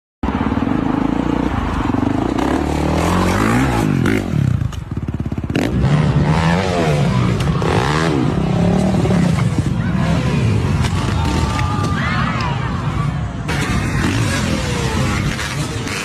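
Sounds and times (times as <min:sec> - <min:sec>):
dirt bike engine revving: 0:00.3 - 0:11.8, 0:13.4 - 0:16.0.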